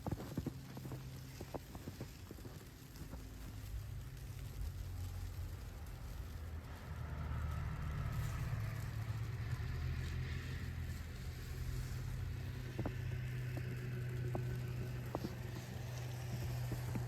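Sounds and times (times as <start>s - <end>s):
faint tyre hiss: 0.0s - 17.0s
car engine humming: 6.3s - 17.0s.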